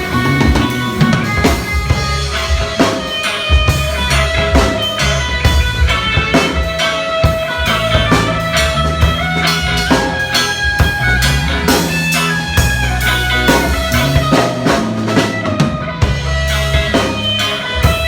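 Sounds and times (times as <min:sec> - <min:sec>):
bass guitar: 0:00.0 - 0:18.0
drum kit: 0:00.0 - 0:18.0
guitar: 0:00.0 - 0:18.0.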